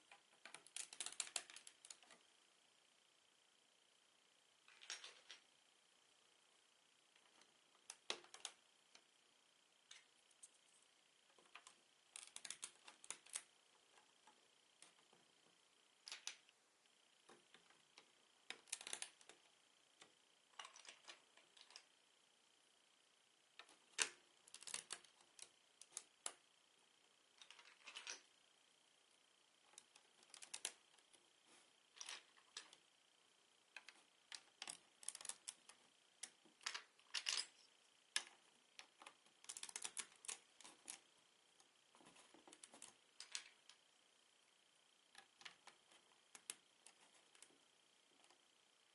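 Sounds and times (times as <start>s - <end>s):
plastic bricks clicking together: 0.5s - 2.0s, 38.2s - 41.0s.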